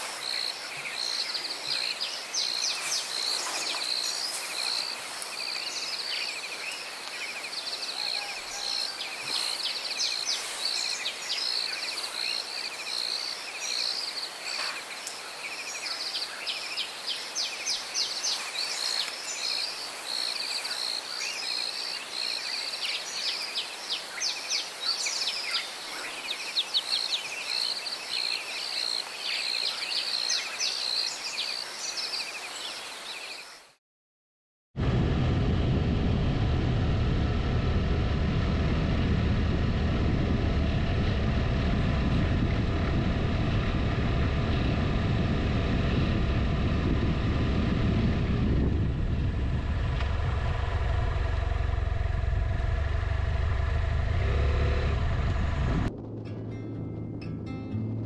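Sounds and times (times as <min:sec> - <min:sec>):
birds chirping: 0:00.0 - 0:33.7
insects trilling: 0:00.0 - 0:33.7.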